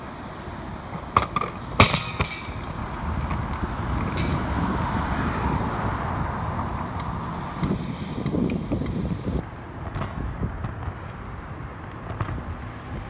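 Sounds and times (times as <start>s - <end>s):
steady wind rushing: 0.0s - 13.0s
sharp knocks: 1.2s - 2.8s.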